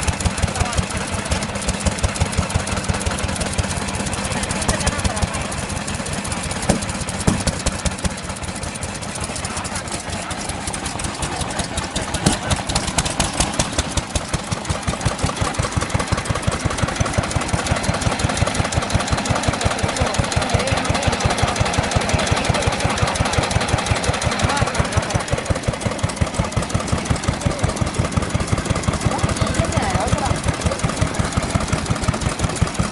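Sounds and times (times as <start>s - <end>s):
stationary engine running: 0.0s - 32.9s.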